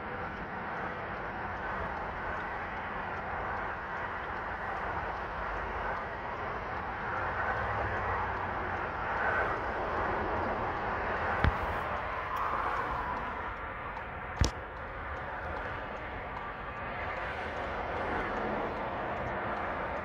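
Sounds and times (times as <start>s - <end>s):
freight train wheels rumbling on rails: 0.0s - 20.0s.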